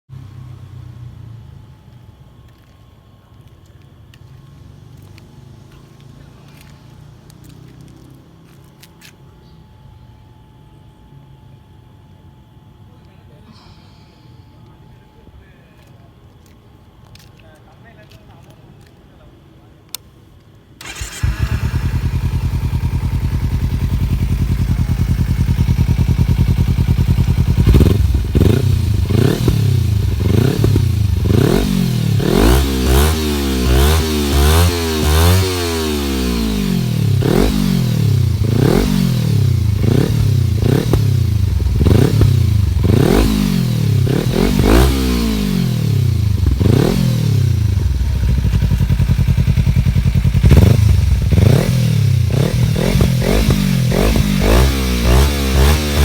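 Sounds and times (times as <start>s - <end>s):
motorcycle engine revving: 20.8s - 56.0s.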